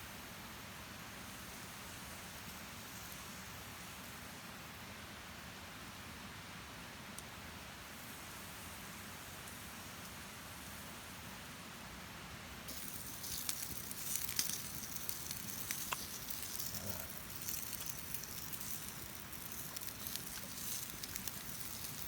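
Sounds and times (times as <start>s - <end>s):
faint steady hiss: 0.0s - 22.0s
campfire crackling and popping: 12.7s - 22.0s.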